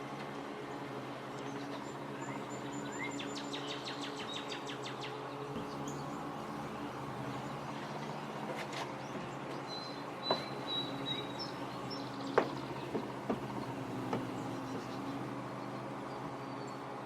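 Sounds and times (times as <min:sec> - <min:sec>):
steady low hum: 0:00.0 - 0:17.0
bird chirping: 0:01.4 - 0:08.3, 0:09.0 - 0:17.0
light sharp knocks: 0:10.2 - 0:10.8, 0:12.2 - 0:14.9.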